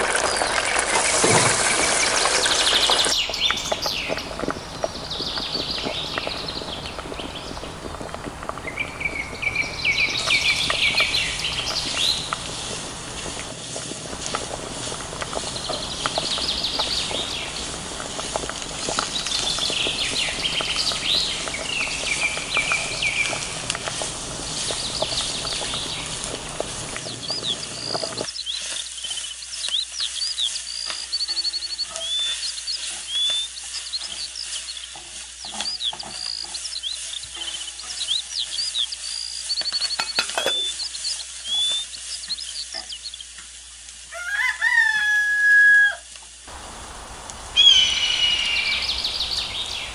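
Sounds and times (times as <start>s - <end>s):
crackling hiss: 0.0s - 49.9s
small birds chirping: 0.1s - 13.5s, 14.2s - 43.4s, 46.5s - 49.9s
rooster crowing: 44.1s - 46.1s.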